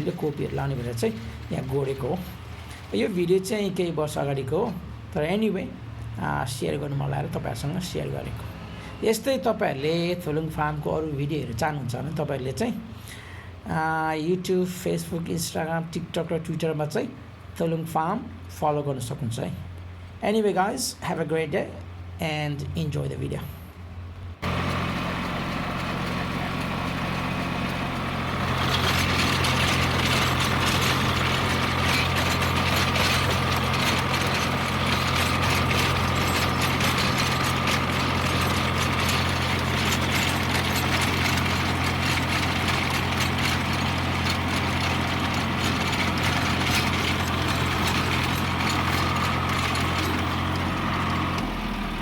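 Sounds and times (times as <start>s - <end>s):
metallic clatter of implement: 0.0s - 3.2s, 24.4s - 51.7s
tractor engine running: 0.0s - 13.2s, 24.3s - 52.0s.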